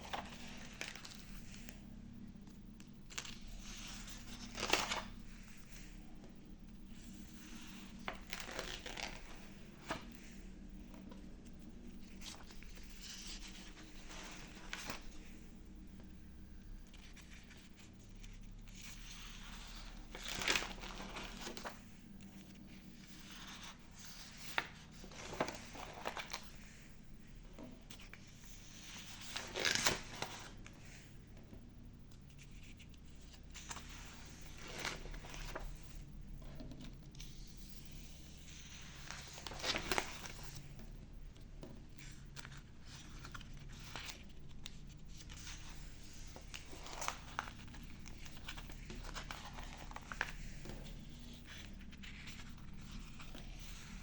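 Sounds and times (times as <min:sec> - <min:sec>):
faint low hum: 0:00.0 - 0:54.0.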